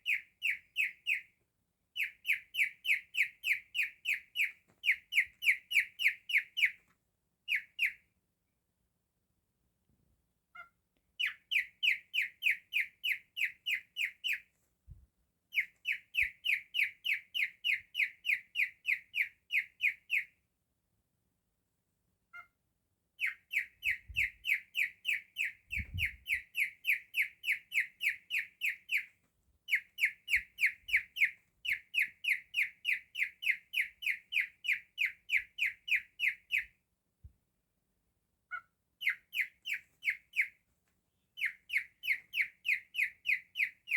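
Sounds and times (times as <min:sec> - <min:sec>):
cockatiel chirping: 0:00.0 - 0:01.3, 0:02.0 - 0:06.9, 0:07.5 - 0:08.0, 0:10.6 - 0:14.5, 0:15.5 - 0:20.3, 0:23.2 - 0:36.8, 0:38.5 - 0:40.6, 0:41.4 - 0:43.9.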